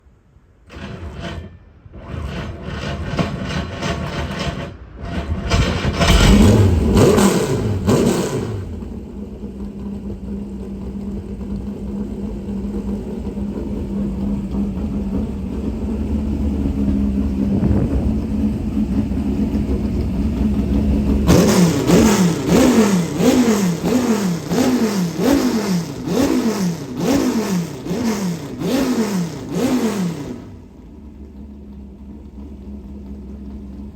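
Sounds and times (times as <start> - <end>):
race car engine revving: 1.9 - 30.7
race car engine idling: 5.6 - 33.9
sharp throttle blips: 14.2 - 30.7.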